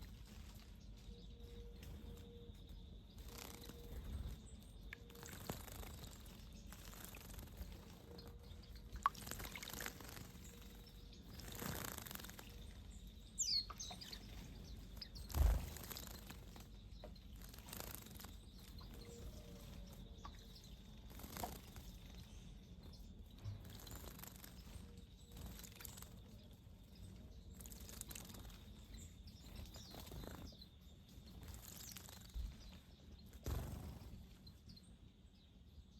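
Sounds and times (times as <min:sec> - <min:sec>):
faint bird chirp: 0:00.0 - 0:35.9
wing flutters: 0:03.1 - 0:34.4
birds splashing in water: 0:05.0 - 0:10.6, 0:11.3 - 0:12.8.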